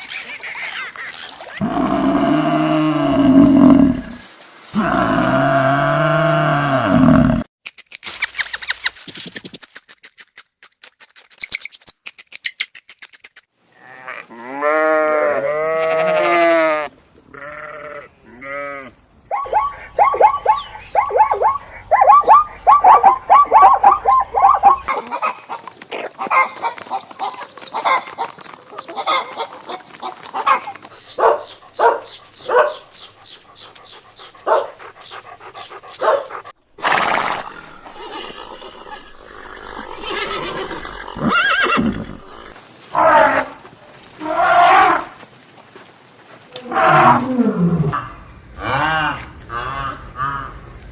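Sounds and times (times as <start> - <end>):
goats and sheep bleating: 13.8 - 19.0.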